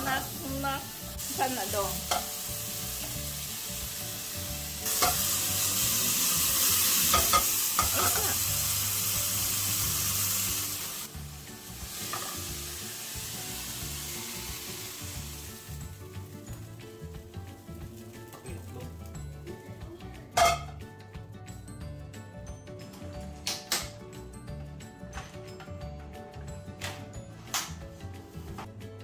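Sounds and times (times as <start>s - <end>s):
chicken sizzling in a pan: 0.0s - 19.2s.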